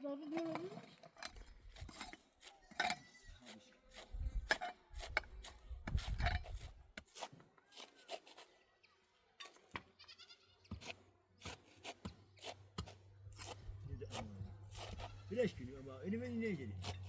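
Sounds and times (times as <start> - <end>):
animal bleating: 2.6 - 3.5, 10.0 - 10.7, 14.8 - 15.5.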